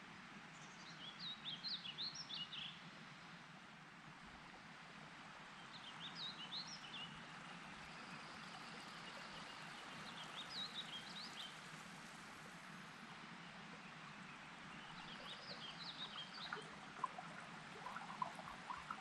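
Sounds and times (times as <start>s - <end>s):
faint outdoor hiss: 0.0s - 19.0s
songbird chirping: 13.7s - 19.0s.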